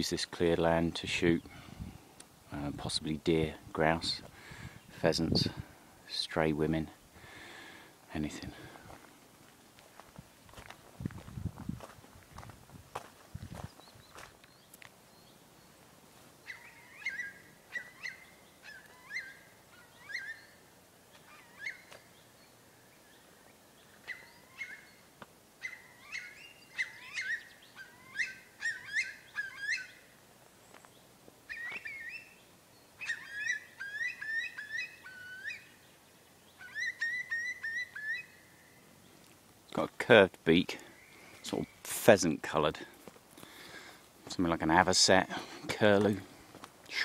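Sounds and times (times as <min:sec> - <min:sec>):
bird whistling calls: 0:16.4 - 0:20.6, 0:21.2 - 0:23.2, 0:23.8 - 0:25.0, 0:25.6 - 0:30.1, 0:31.5 - 0:32.4, 0:33.0 - 0:35.8, 0:36.5 - 0:38.9.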